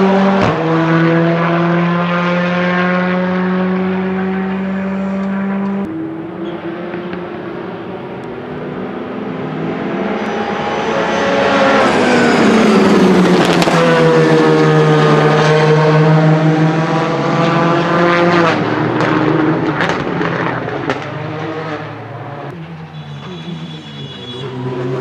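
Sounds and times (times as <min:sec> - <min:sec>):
rally car engine passing: 0:00.0 - 0:25.0
exhaust cracks: 0:12.4 - 0:14.4, 0:18.3 - 0:23.6.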